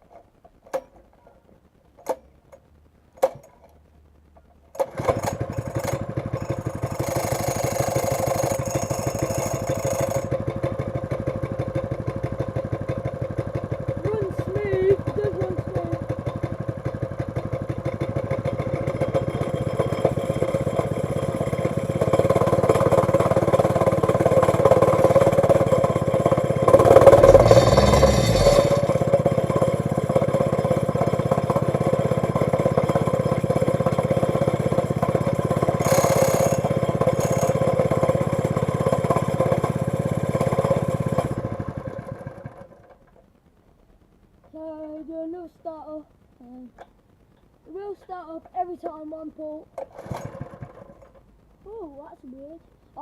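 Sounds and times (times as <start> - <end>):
small engine running: 4.8 - 42.9, 49.8 - 53.0.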